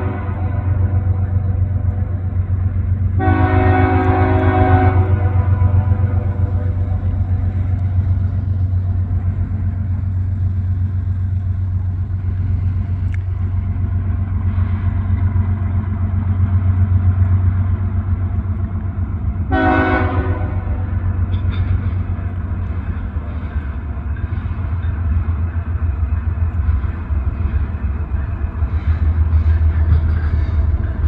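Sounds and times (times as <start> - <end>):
locomotive air horn blast: 0.0 - 1.0, 3.2 - 6.9, 19.5 - 20.9
diesel locomotive droning: 0.0 - 31.0.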